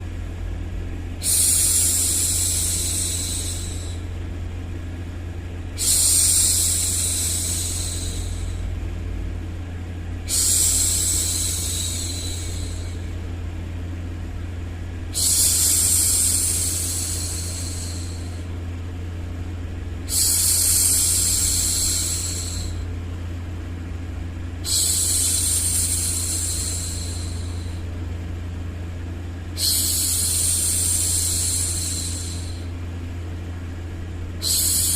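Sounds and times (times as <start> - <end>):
low white-noise rumble: 0.0 - 34.9
woman shushing: 1.2 - 4.1, 5.8 - 8.7, 10.3 - 13.0, 15.1 - 18.4, 29.6 - 32.7, 34.4 - 34.9.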